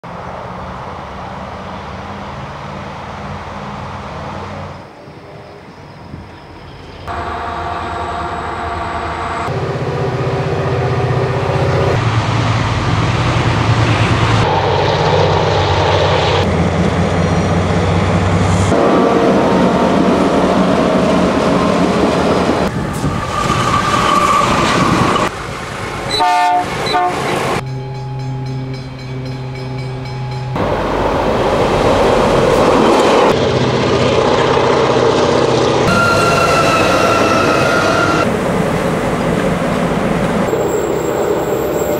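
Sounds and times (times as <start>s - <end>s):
diesel locomotive engines running: 0.0s - 41.9s
train horn: 26.1s - 27.4s, 35.9s - 38.3s.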